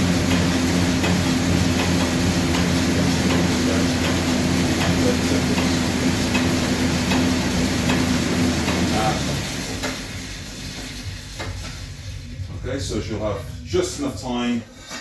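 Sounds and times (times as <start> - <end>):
exercise bike fan whooshing: 0.0 - 14.4.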